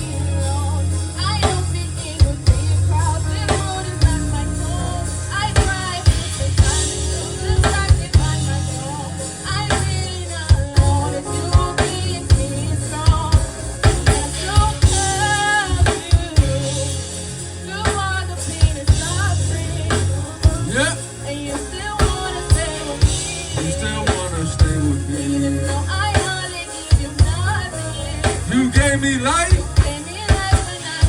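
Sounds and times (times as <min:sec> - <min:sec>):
heavy bass line: 0:00.0 - 0:31.0
person singing: 0:00.0 - 0:31.0
drum-kit hits: 0:05.5 - 0:17.2.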